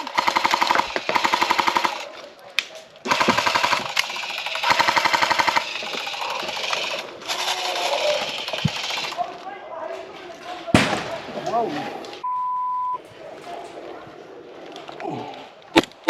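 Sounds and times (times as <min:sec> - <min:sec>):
airsoft guns firing bursts: 0:00.0 - 0:02.2, 0:03.0 - 0:09.4, 0:10.8 - 0:11.9.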